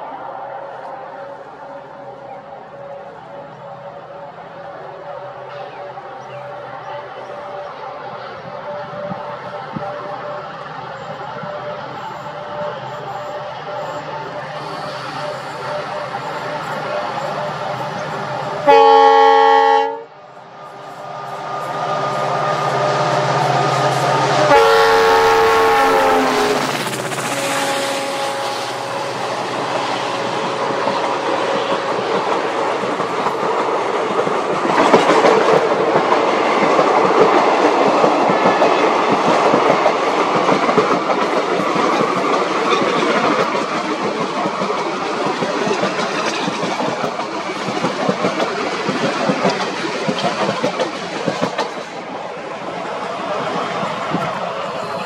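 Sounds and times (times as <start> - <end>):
train rumble and clatter on rails: 0.0 - 55.0
locomotive horn blasts: 18.6 - 20.1, 23.3 - 29.3.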